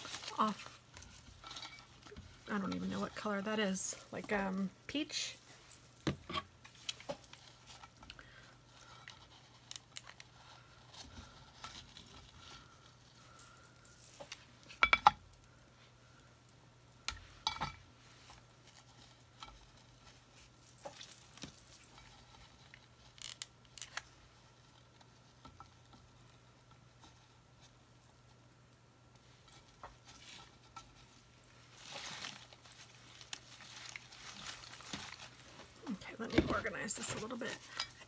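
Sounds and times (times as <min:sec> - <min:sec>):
craft materials rustling: 0:00.0 - 0:14.8, 0:29.3 - 0:38.0.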